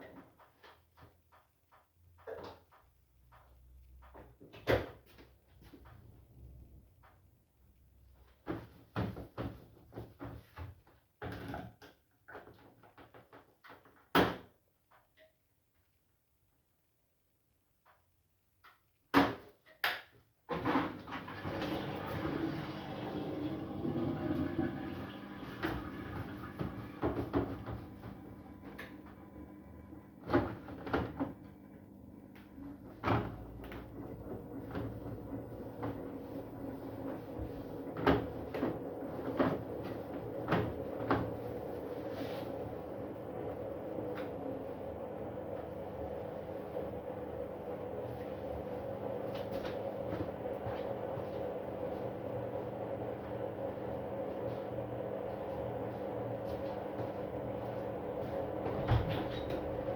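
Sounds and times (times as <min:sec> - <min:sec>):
washing machine hum: 0:00.0 - 0:14.4, 0:20.4 - 0:59.9
washing machine knocks and clunks: 0:08.4 - 0:11.8, 0:20.5 - 0:29.0, 0:30.2 - 0:31.4, 0:32.9 - 0:41.5, 0:58.5 - 0:59.9.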